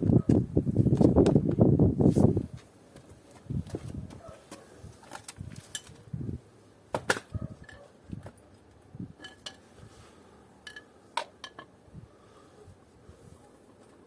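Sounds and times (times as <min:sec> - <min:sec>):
metal parts clinking and knocking: 0:10.6 - 0:11.7.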